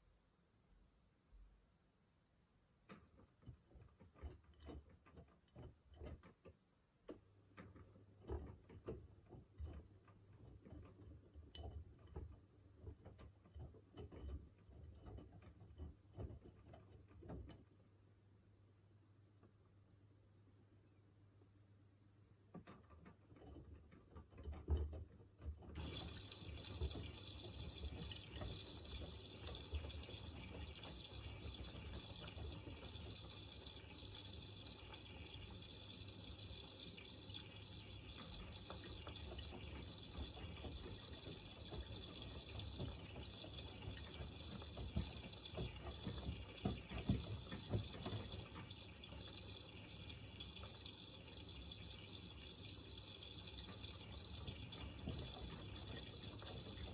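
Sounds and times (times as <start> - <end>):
water hissing into washing machine: 25.7 - 56.9.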